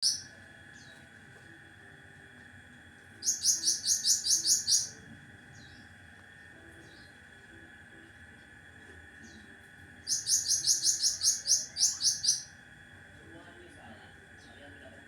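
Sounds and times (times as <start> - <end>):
bird giving rapid harsh call: 3.2 - 4.9, 10.1 - 12.5.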